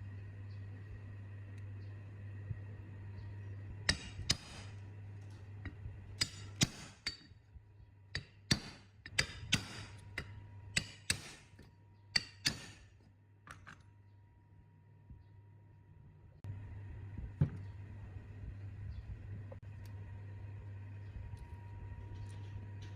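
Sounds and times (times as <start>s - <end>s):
low steady hum: 0.0s - 22.9s
sharp metal-on-metal taps: 3.9s - 4.7s, 8.1s - 11.5s, 12.1s - 12.9s.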